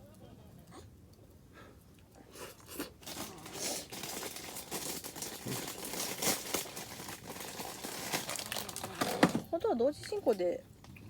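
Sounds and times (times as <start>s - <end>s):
plastic bag crinkling: 2.7s - 10.4s.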